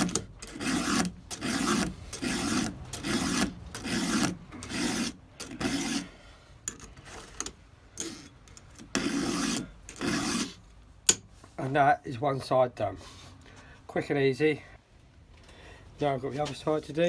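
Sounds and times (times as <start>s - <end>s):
file rasping chainsaw chain: 0.0s - 10.6s.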